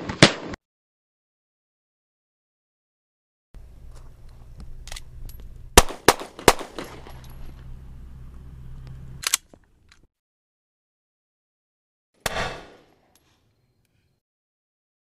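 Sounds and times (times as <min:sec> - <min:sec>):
handgun shots: 0:12.2 - 0:12.8.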